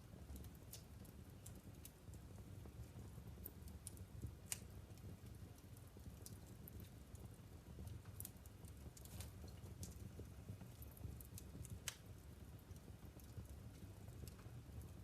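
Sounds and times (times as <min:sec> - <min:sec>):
fire crackling and popping: 0:00.0 - 0:15.0
low steady fire rumble: 0:00.0 - 0:15.0.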